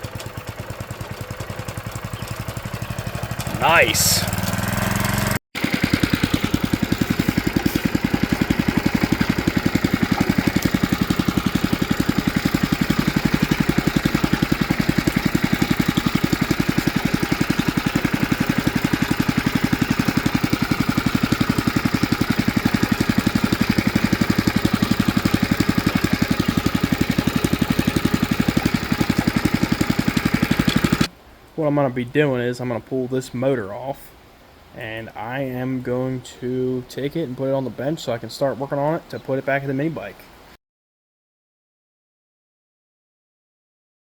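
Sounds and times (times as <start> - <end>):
small engine running steadily: 0.0 - 31.1.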